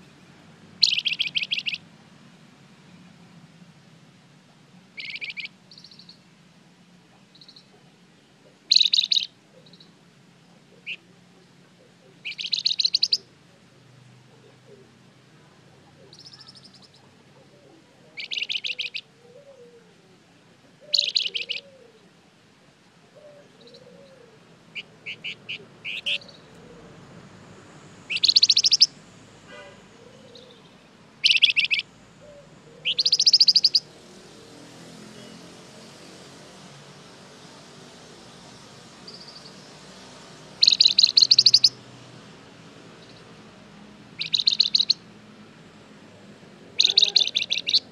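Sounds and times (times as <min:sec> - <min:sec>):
bird chip calls: 0:00.8 - 0:01.9, 0:05.0 - 0:06.2, 0:07.2 - 0:07.8, 0:08.5 - 0:10.0, 0:10.7 - 0:11.1, 0:11.8 - 0:13.3, 0:15.9 - 0:17.2, 0:18.1 - 0:19.6, 0:20.8 - 0:21.9, 0:23.2 - 0:26.8, 0:28.0 - 0:33.9, 0:40.6 - 0:41.8, 0:44.2 - 0:45.1, 0:46.8 - 0:47.9
songbird trilling: 0:00.8 - 0:01.9, 0:05.0 - 0:06.2, 0:07.2 - 0:07.7, 0:08.6 - 0:10.0, 0:10.7 - 0:11.1, 0:11.9 - 0:13.3, 0:15.9 - 0:17.2, 0:18.1 - 0:19.6, 0:20.8 - 0:21.9, 0:23.2 - 0:26.8, 0:28.0 - 0:29.0, 0:30.0 - 0:33.9, 0:39.0 - 0:39.7, 0:40.6 - 0:41.8, 0:44.2 - 0:45.0, 0:46.8 - 0:47.9.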